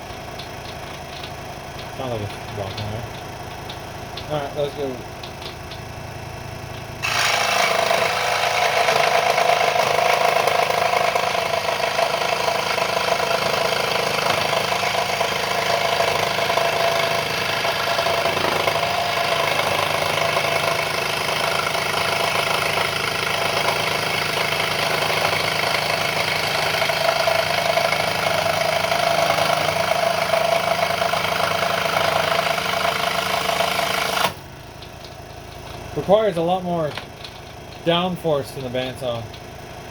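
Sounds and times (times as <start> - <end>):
scroll saw cutting wood: 7.0 - 34.4.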